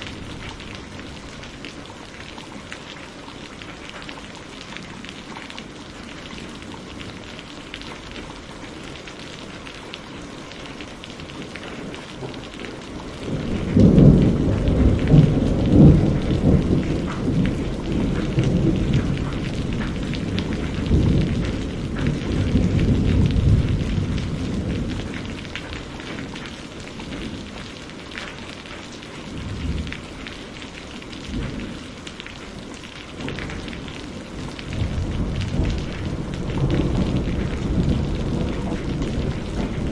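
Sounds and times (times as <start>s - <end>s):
steady rain falling: 0.0s - 39.9s
rolling thunder: 13.1s - 26.4s, 33.2s - 39.9s.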